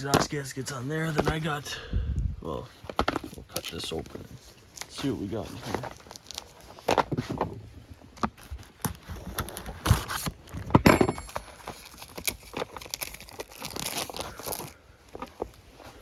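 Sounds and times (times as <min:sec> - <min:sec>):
packaging crinkling and tearing: 0:02.9 - 0:10.7, 0:11.3 - 0:16.0.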